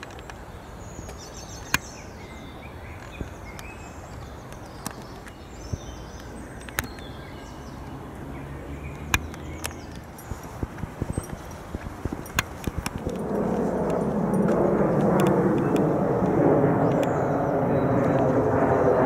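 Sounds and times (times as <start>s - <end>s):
songbirds chirping: 0.0s - 19.0s
steady background noise: 0.0s - 19.0s
sharp clicks: 3.0s - 7.1s, 8.9s - 17.2s.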